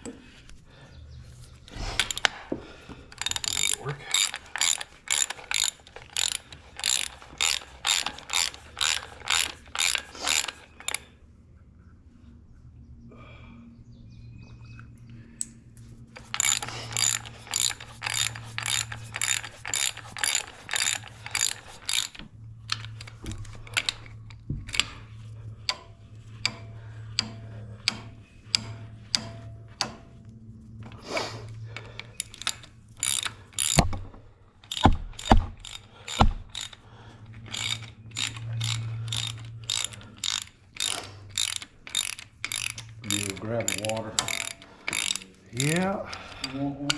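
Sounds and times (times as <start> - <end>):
steady low hum: 0.0 - 46.9
ratchet wrench clicking: 1.7 - 11.1, 15.4 - 46.9.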